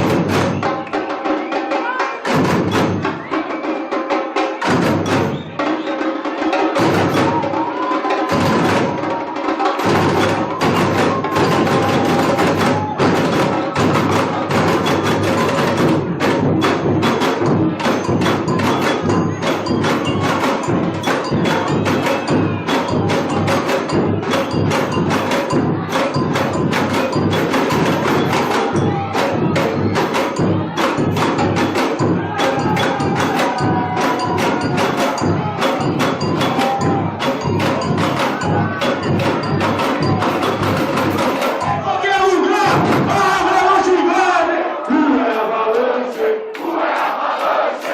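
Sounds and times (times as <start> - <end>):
samba drums and percussion: 0.0 - 47.9.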